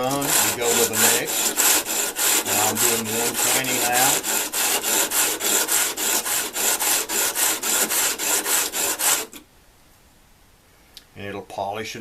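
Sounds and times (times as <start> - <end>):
blades scraping on sandpaper: 0.0 - 9.4.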